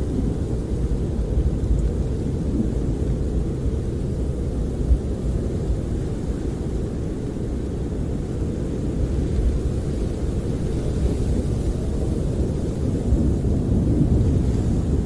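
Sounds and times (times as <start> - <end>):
snowstorm wind against camper: 0.0 - 15.0.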